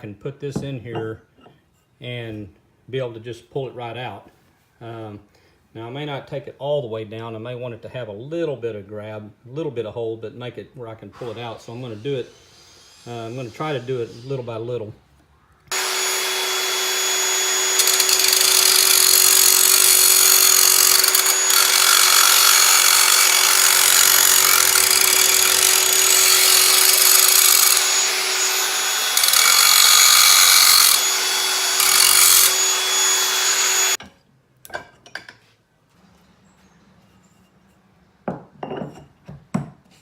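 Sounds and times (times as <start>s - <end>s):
power grinder grinding metal: 15.7s - 34.0s.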